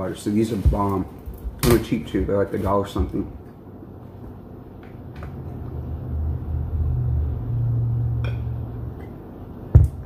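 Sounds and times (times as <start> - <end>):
low steady rumble: 3.1 - 10.0.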